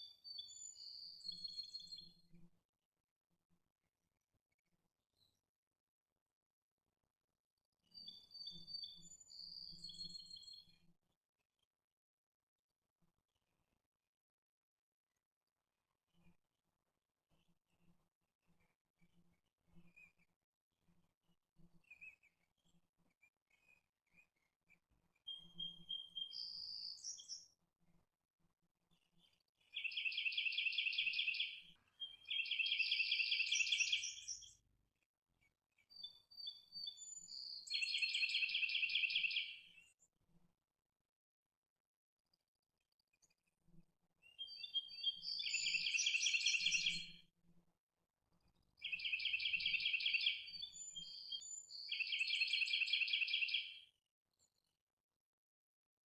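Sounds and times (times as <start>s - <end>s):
songbird singing: 25.3s - 27.4s, 29.8s - 34.6s, 36.4s - 39.7s, 44.3s - 47.2s, 48.8s - 53.8s.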